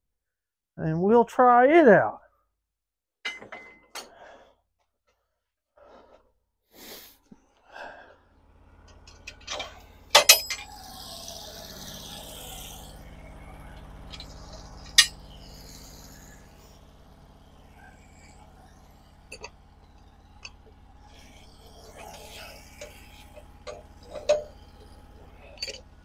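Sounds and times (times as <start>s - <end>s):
low engine hum: 7.6s - 26.0s
sharp metallic clanks: 9.1s - 11.3s, 14.1s - 15.7s, 22.0s - 25.9s.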